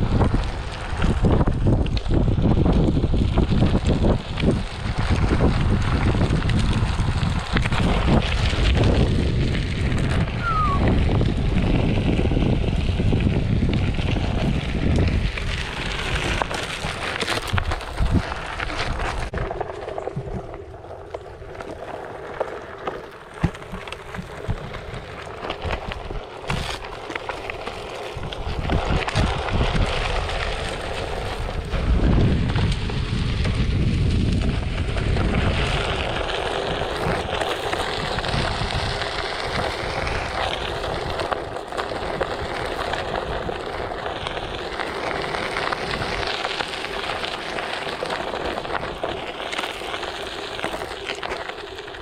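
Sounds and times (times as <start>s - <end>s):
wind buffeting microphone: 0.0s - 21.5s, 28.1s - 47.3s
grit and stones crackling: 0.0s - 52.0s
tyre rolling over dirt trail: 0.0s - 52.0s.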